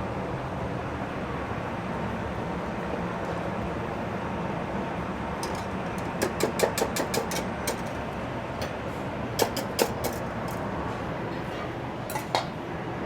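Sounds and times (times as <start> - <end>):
kitchen ventilation hum: 0.0 - 13.0
metal utensil clinking on pan: 5.4 - 8.0, 12.1 - 12.6.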